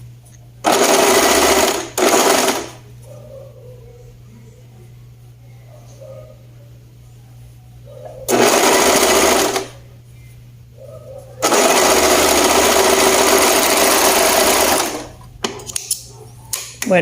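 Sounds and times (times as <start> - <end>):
sewing machine stitching: 0.7 - 2.7, 8.3 - 9.7, 11.4 - 15.1.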